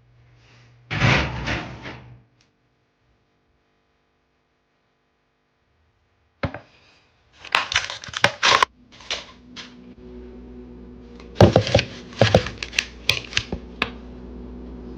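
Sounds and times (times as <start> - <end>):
low appliance hum: 0.0 - 3.4, 6.0 - 14.9
kitchen clicks and clatter: 7.4 - 9.4.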